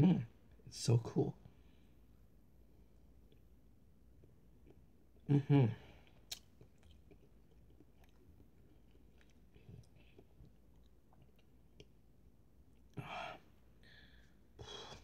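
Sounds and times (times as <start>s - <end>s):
person chewing: 6.0s - 12.0s.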